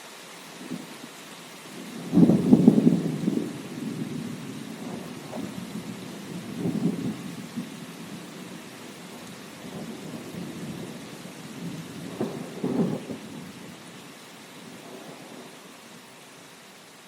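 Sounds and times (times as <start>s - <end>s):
steady rain: 0.0s - 17.0s
rolling thunder: 1.8s - 13.7s
sharp thunder crack: 2.1s - 5.6s, 11.6s - 13.2s.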